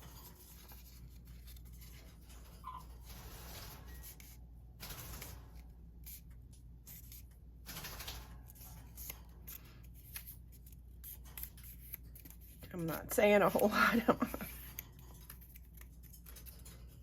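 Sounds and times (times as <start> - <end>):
paper rustling: 0.0 - 4.4, 8.1 - 12.7, 14.2 - 17.0.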